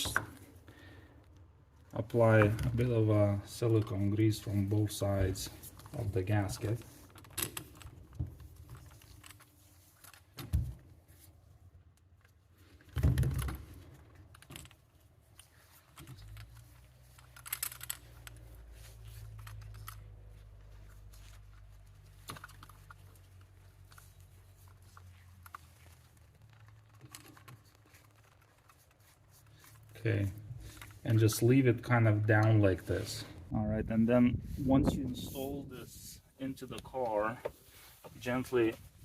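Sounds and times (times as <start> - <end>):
handling clicks and knocks: 1.2 - 11.0, 11.9 - 32.8.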